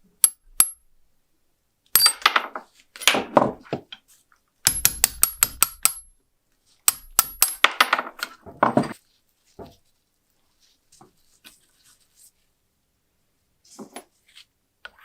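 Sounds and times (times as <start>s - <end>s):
metallic clinks and taps: 0.2s - 0.8s, 2.0s - 2.4s, 4.7s - 6.1s, 6.9s - 7.7s
high metallic ringing: 0.2s - 0.9s, 2.0s - 2.3s, 4.7s - 6.1s, 6.9s - 7.6s.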